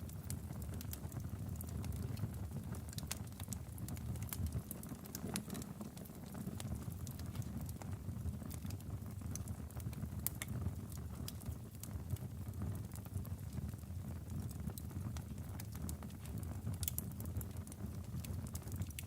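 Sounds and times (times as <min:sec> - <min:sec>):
fire crackling and popping: 0:00.0 - 0:19.0
fire rumbling: 0:00.0 - 0:19.0.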